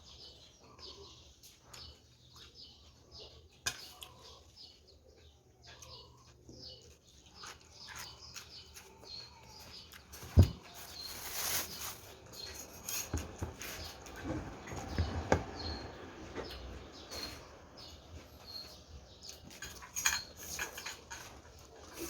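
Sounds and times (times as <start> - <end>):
cutlery clinking on a dish: 19.5 - 22.0.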